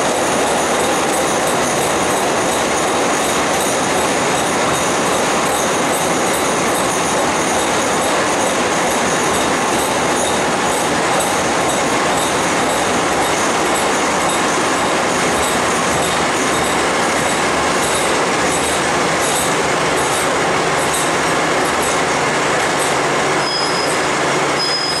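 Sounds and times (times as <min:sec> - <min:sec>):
train wheels rushing on rails: 0:00.0 - 0:25.0
thin high squeal: 0:23.4 - 0:25.0.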